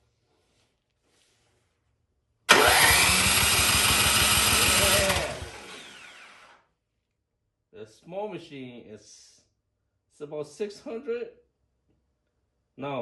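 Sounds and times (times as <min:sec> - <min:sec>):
engine cranking by electric starter: 0:02.5 - 0:06.6.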